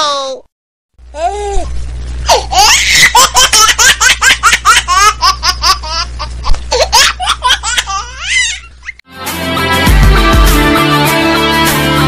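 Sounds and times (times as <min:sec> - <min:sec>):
music: 0:09.1 - 0:12.0.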